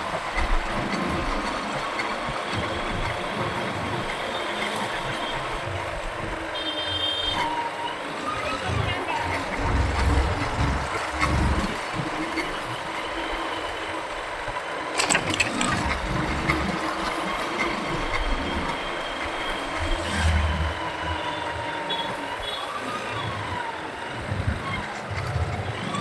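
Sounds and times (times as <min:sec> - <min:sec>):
motorcycle engine and road noise: 0:00.0 - 0:26.0
surrounding traffic: 0:00.0 - 0:26.0
sharp clicks: 0:15.0 - 0:16.2.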